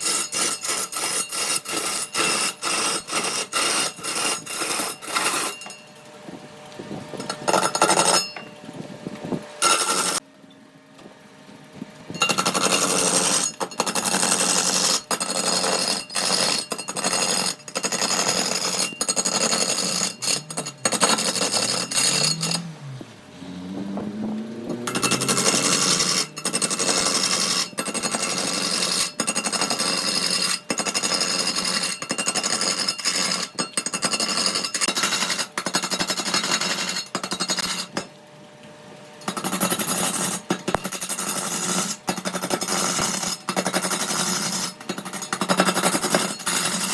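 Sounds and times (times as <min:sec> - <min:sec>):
electric power tool cutting wood: 0:09.6 - 0:10.2, 0:12.5 - 0:32.0.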